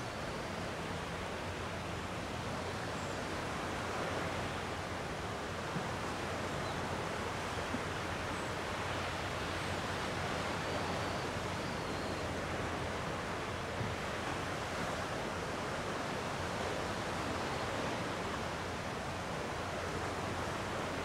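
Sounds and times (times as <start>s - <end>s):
sea waves washing on shore: 12.2s - 21.0s.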